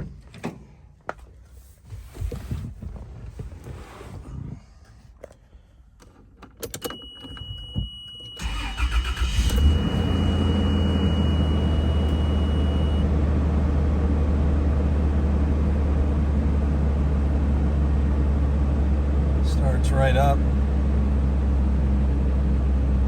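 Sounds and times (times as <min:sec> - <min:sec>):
high electronic tone: 0:08.4 - 0:13.0
car engine idling: 0:08.4 - 0:23.0.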